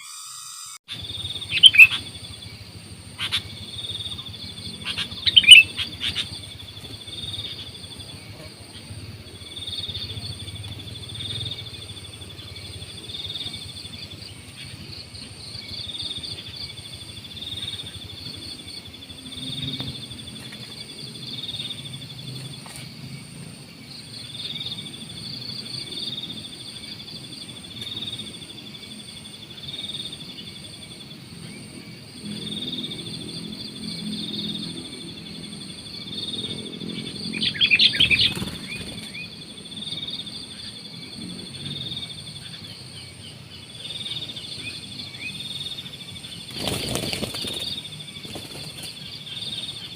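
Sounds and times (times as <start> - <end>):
bird calls: 0.0 - 21.8, 36.0 - 41.0, 42.0 - 49.9
high-pitched insect drone: 0.0 - 49.9.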